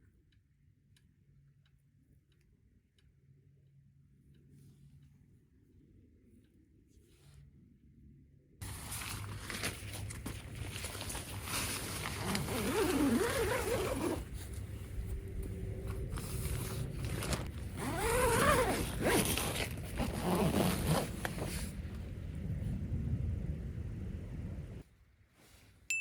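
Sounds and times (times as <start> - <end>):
zipper being pulled: 8.6 - 14.7, 15.8 - 21.8.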